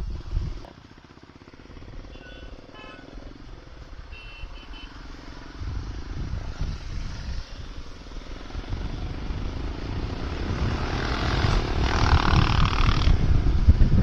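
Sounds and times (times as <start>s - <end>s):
motorcycle engine idling: 0.1s - 5.2s.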